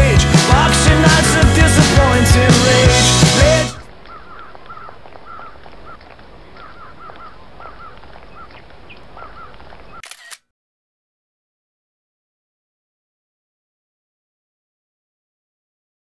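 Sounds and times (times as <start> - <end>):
rock music: 0.0 - 3.9
outdoor ambience: 3.4 - 10.4
bird chirping: 4.0 - 10.0.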